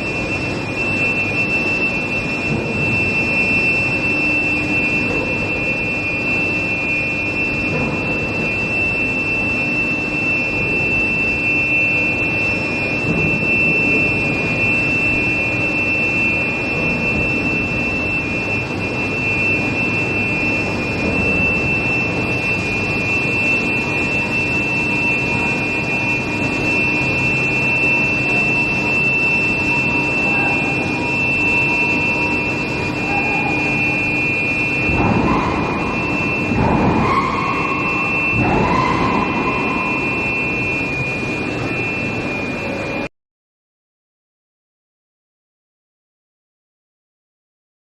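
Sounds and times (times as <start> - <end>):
high-pitched induction coil whine: 0.0 - 43.1
machinery noise: 0.0 - 43.1.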